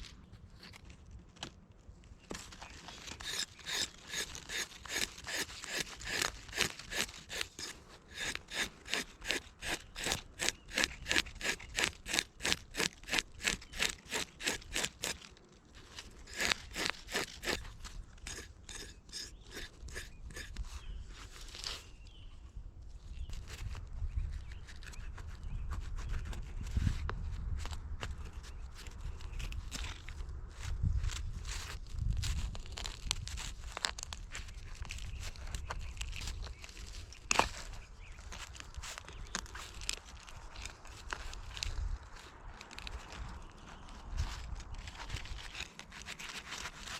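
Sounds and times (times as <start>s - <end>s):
hand saw cutting wood: 2.8s - 20.8s, 44.8s - 46.9s.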